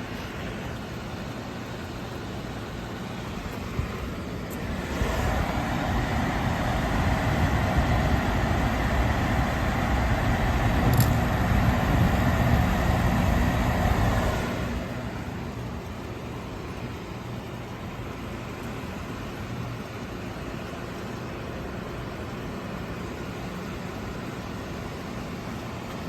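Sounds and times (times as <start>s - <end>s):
air conditioner humming: 0.0s - 26.0s
air conditioner click: 6.4s - 15.0s.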